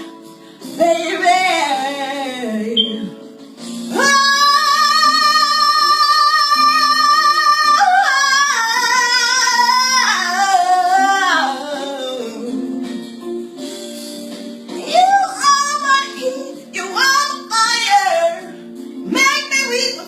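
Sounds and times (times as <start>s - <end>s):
soft backing accompaniment: 0.0s - 20.0s
woman singing wordless notes: 0.7s - 3.3s, 3.9s - 12.9s, 14.8s - 20.0s.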